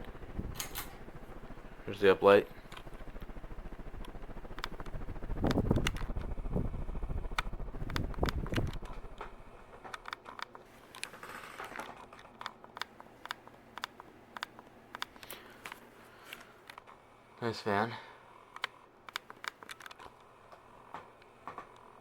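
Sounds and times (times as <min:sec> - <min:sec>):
ceiling fan airflow buffeting microphone: 0:00.0 - 0:22.0
sharp clicks: 0:02.6 - 0:11.1, 0:12.2 - 0:16.9, 0:18.5 - 0:20.2.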